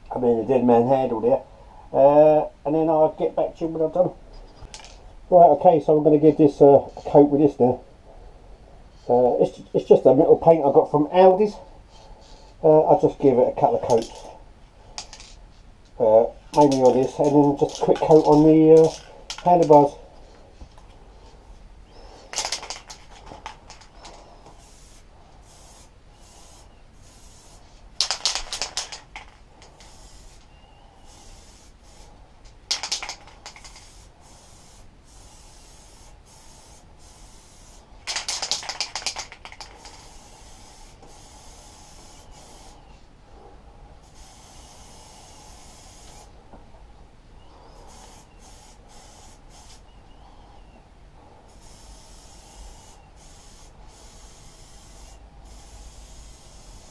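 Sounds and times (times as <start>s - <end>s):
aerosol paint spraying: 16.5s - 21.3s, 22.0s - 42.9s, 44.0s - 46.4s, 47.7s - 49.9s, 51.5s - 56.9s.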